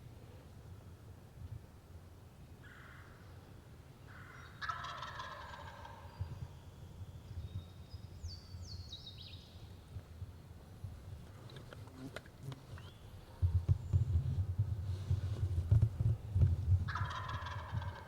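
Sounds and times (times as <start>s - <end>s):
turkey gobbling: 4.6s - 6.0s, 16.9s - 18.0s.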